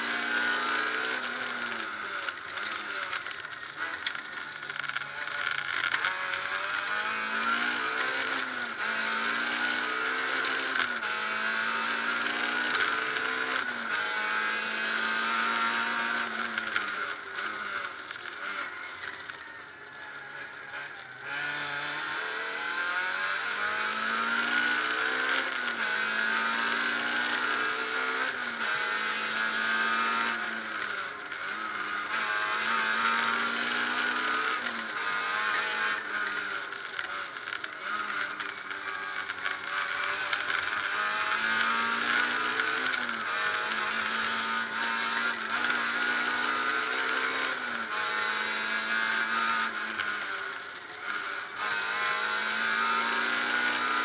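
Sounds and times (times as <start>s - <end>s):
car engine accelerating through gears: 0.0s - 54.0s.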